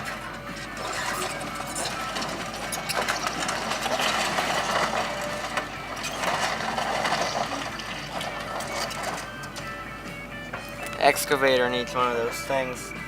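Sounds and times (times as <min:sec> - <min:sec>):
timbers breaking and clattering: 0:00.0 - 0:09.7
excavator diesel engine under load: 0:00.0 - 0:12.2.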